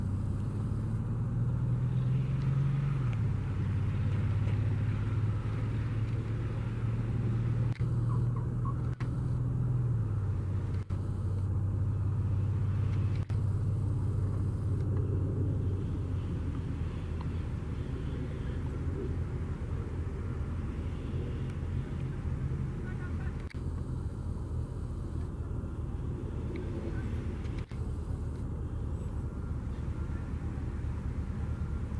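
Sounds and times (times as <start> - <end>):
light aircraft engine and propeller drone: 0.0 - 31.9.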